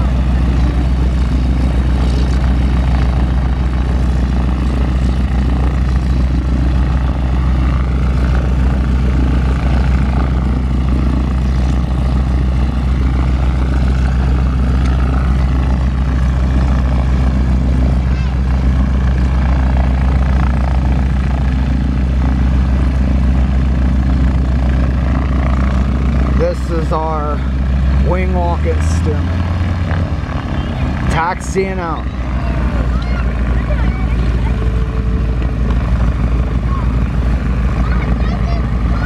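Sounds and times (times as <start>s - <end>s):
radial aircraft engine idling: 0.0s - 39.0s.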